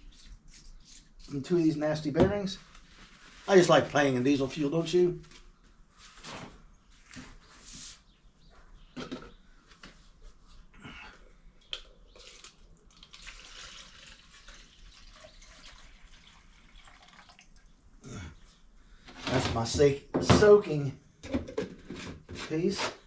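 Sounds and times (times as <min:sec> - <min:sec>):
liquid splashing and dripping: 0:11.7 - 0:17.8.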